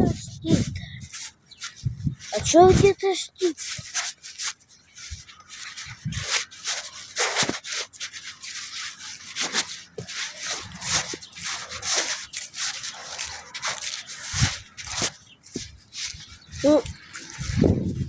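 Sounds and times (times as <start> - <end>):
soft low thumps: 0.0 - 1.1, 1.7 - 3.0, 15.6 - 18.0
rustling and rubbing: 0.0 - 18.0.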